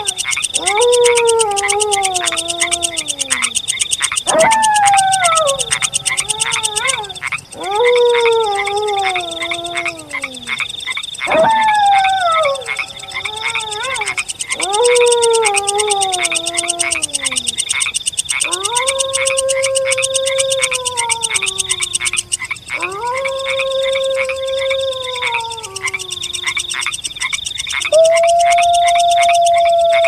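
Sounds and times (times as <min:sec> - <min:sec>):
fast high-pitched trill: 0:00.0 - 0:07.3
wolf howling: 0:00.0 - 0:17.6, 0:18.4 - 0:26.7, 0:27.9 - 0:30.0
frogs croaking: 0:00.0 - 0:30.0.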